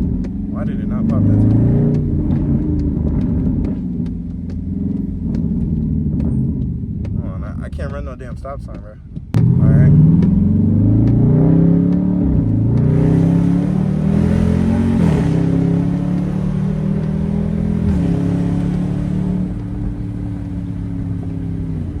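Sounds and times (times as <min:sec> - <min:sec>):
car engine revving through gears: 0:00.0 - 0:08.2, 0:09.1 - 0:22.0.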